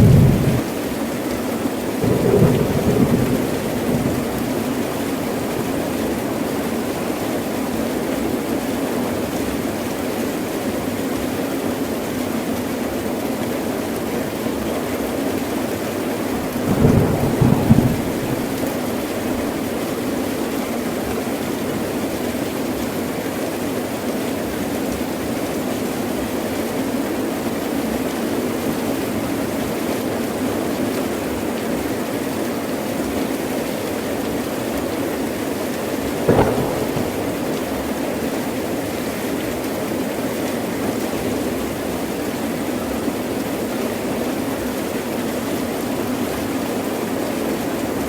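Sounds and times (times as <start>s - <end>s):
thunder claps: 0.0s - 0.7s, 2.0s - 5.9s, 16.5s - 19.8s, 36.0s - 38.6s
heavy rain pouring: 0.0s - 48.0s.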